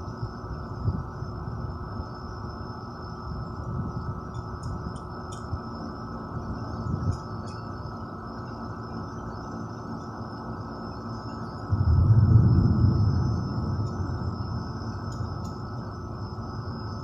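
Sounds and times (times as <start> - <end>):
crickets chirping: 0.0 - 17.0
distant thunder rumble: 11.7 - 16.9.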